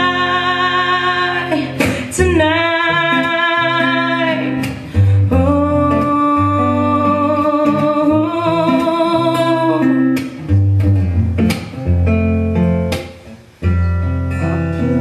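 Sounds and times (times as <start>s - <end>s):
person singing with vibrato: 0.0s - 10.2s
guitar-led band: 0.0s - 15.0s.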